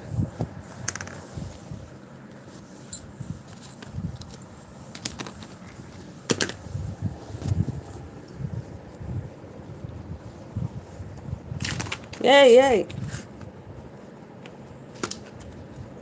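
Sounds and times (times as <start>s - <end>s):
light clicks and jangling: 2.8s - 4.4s.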